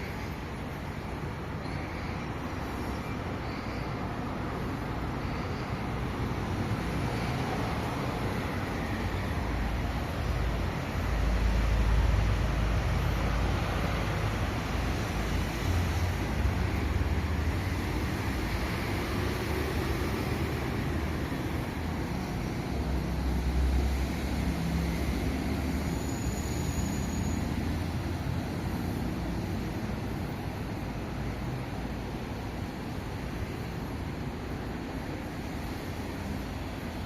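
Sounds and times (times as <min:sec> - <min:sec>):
train rumbling on rails: 0:00.0 - 0:37.0
high thin squeal: 0:25.7 - 0:27.9.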